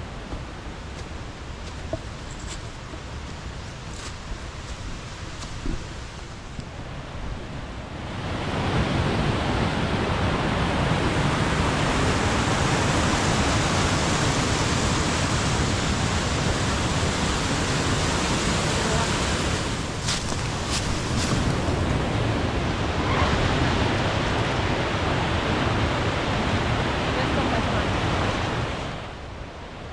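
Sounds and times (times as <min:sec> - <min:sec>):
waterfall roaring: 0:08.0 - 0:29.2.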